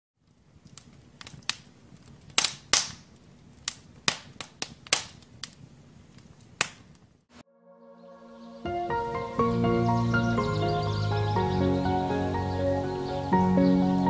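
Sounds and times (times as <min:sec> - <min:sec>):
firewood crackling and popping: 0:00.2 - 0:07.3
low rumble of fire: 0:00.2 - 0:07.3.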